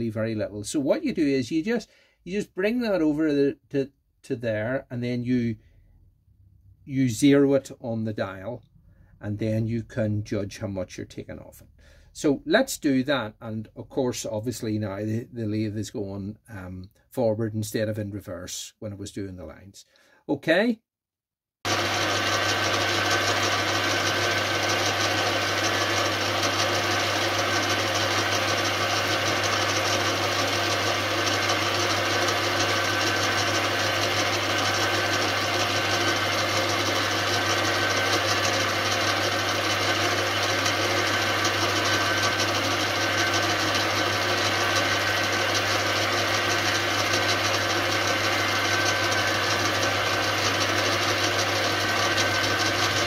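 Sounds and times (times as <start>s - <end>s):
metal lathe humming: 21.7s - 53.0s.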